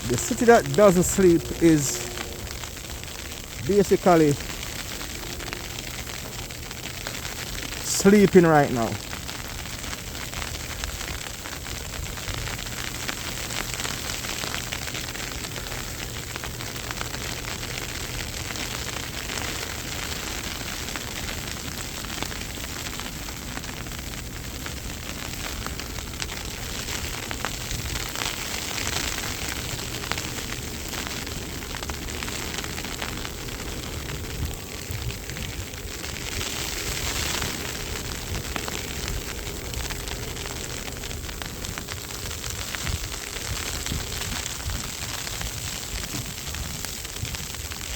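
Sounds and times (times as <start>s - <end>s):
fine dense crackle: 0.0s - 47.9s
wind and blowing snow hissing: 25.0s - 47.8s.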